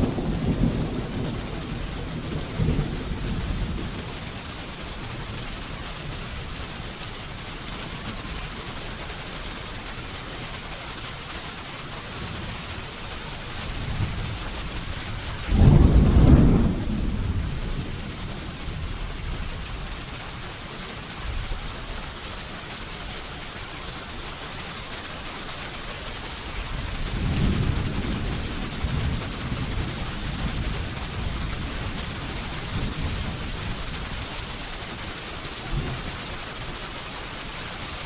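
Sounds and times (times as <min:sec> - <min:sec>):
steady rain falling: 0:00.0 - 0:38.0
thunder rumble: 0:15.3 - 0:19.1
thunder clap: 0:15.5 - 0:18.7, 0:27.1 - 0:33.5.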